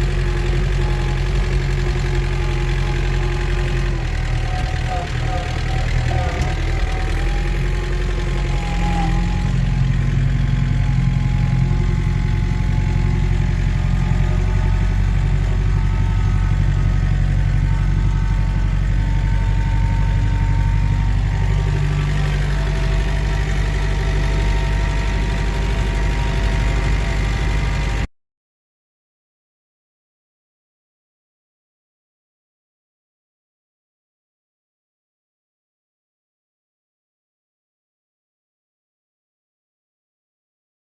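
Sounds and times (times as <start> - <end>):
tractor diesel engine running: 0.0 - 28.1.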